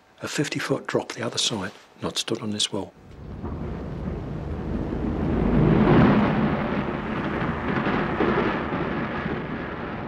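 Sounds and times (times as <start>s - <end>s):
train rumbling past: 3.0s - 10.0s.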